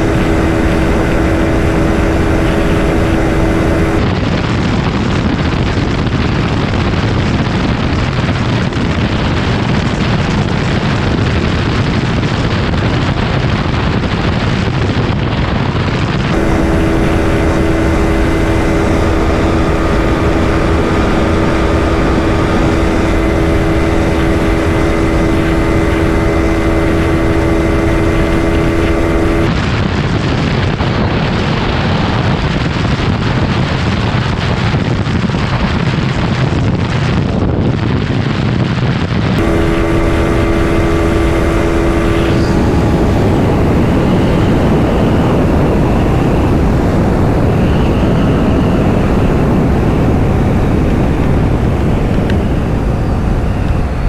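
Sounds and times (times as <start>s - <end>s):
motorcycle engine at top speed: 0.0s - 4.5s, 16.2s - 29.6s, 39.4s - 54.0s
wind rush on microphone: 0.0s - 54.0s.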